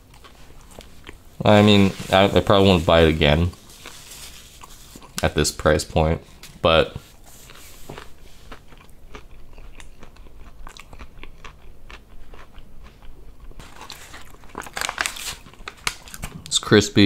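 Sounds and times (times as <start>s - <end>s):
crunchy chewing: 3.5s - 5.2s, 7.3s - 16.4s
paper bag crinkling: 13.6s - 16.4s.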